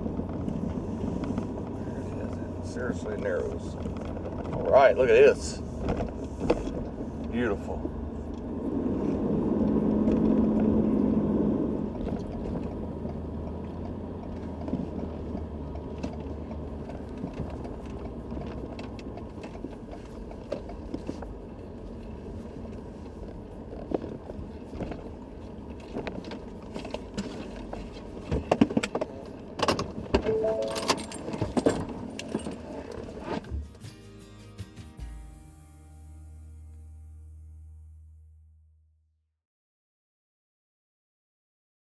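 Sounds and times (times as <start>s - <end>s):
pickup truck engine: 0.0s - 33.4s
road rumble: 0.0s - 33.5s
light rattling and clinking: 30.5s - 33.2s.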